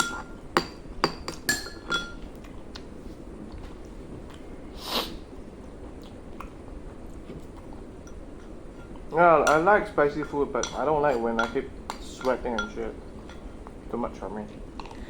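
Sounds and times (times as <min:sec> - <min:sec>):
cutlery clinking against bowl: 0:00.0 - 0:02.5, 0:08.0 - 0:14.0
short hissing noise: 0:04.7 - 0:05.3.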